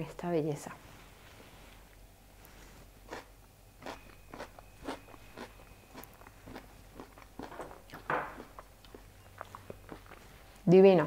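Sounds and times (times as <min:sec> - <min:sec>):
chewing crunchy salad: 0:02.5 - 0:10.7.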